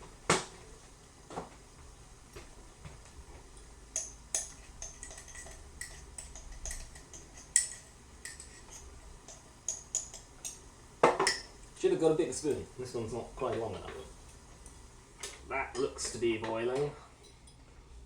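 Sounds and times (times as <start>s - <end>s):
metal teaspoon clinking and scraping: 4.0s - 10.6s.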